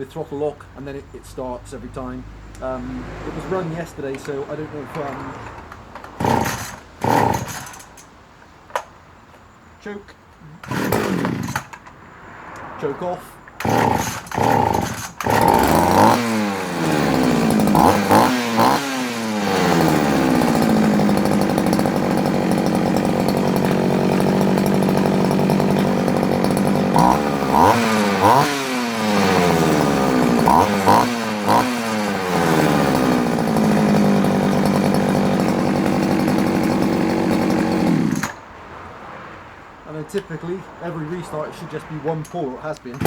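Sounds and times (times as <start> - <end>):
chainsaw idling with throttle blips: 2.5 - 8.1, 10.5 - 11.8, 13.6 - 38.4, 42.7 - 43.0.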